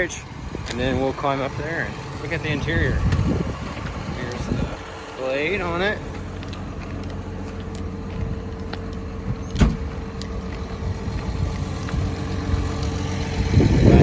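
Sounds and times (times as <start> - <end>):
bulldozer diesel engine idling: 0.0 - 14.0.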